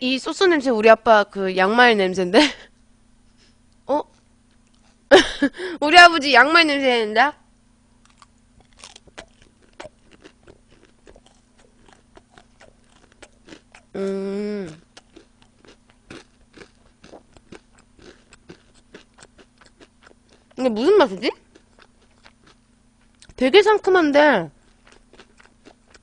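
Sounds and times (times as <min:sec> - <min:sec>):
crunchy chewing: 0:04.0 - 0:05.1, 0:08.0 - 0:23.4, 0:24.5 - 0:26.0.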